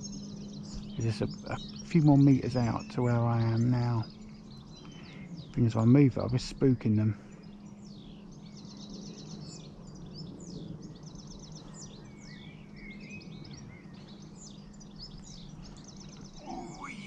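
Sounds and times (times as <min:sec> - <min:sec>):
songbirds singing: 0:00.0 - 0:17.0
steady low hum: 0:00.0 - 0:17.0.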